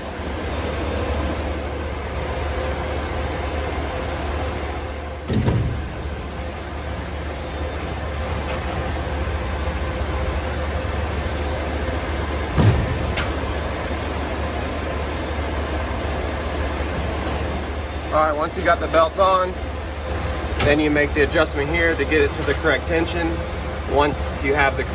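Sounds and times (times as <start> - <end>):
machinery humming: 0.0 - 24.9
dull knocks: 12.2 - 13.9.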